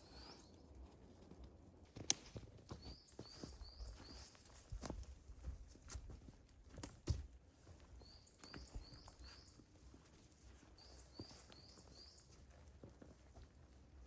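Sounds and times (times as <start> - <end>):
small bird chirping: 2.7 - 4.4, 8.0 - 9.7, 10.7 - 12.5.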